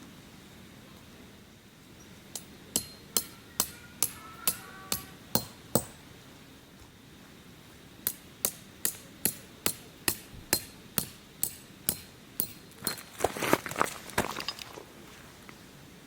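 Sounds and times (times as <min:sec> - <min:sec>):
hammer striking tent peg: 0:02.4 - 0:06.0, 0:08.0 - 0:13.0.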